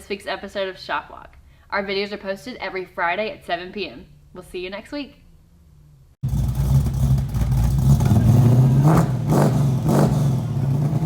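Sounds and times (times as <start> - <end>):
engine droning and revving: 6.2 - 11.0.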